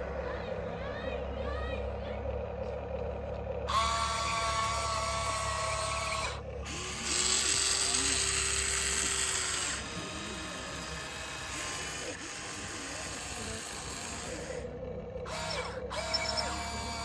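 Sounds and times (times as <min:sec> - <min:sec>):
small electric gear motors whining: 0:03.7 - 0:17.0.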